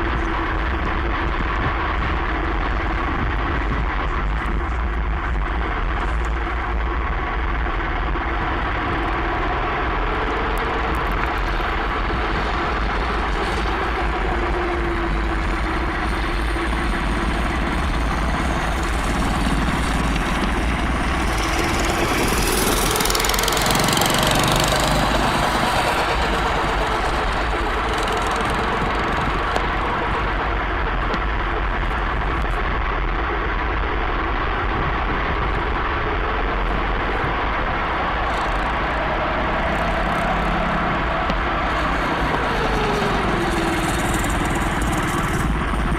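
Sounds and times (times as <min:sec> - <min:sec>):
go-kart engine running: 0:08.0 - 0:32.9, 0:35.4 - 0:45.9.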